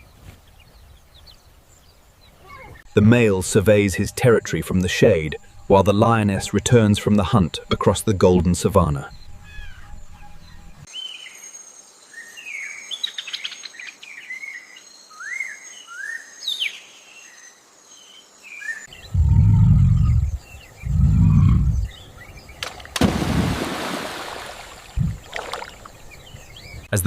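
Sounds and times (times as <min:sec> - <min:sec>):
birds chirping: 0:00.0 - 0:11.4, 0:18.0 - 0:27.0
deep low rumbles: 0:09.0 - 0:10.9, 0:18.9 - 0:22.5, 0:24.9 - 0:25.3.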